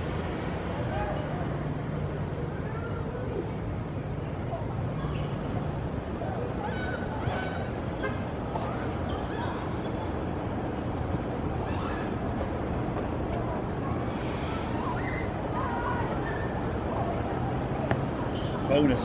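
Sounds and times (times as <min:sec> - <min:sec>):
distant voices: 0:00.0 - 0:19.0
traffic noise: 0:00.0 - 0:19.0.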